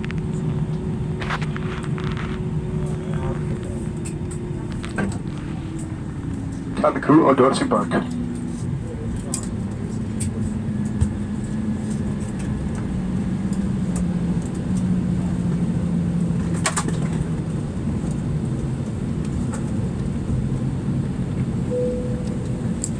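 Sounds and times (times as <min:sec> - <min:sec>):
aircraft cabin drone: 0:00.0 - 0:22.9
hum dropping in pitch: 0:21.7 - 0:22.9.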